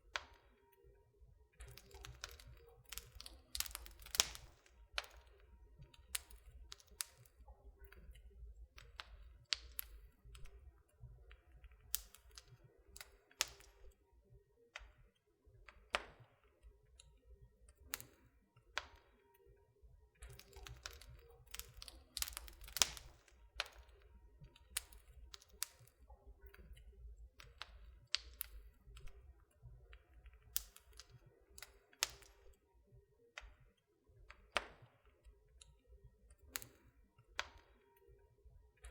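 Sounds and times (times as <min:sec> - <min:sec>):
wood fire crackling: 0:01.6 - 0:13.9, 0:20.2 - 0:32.6.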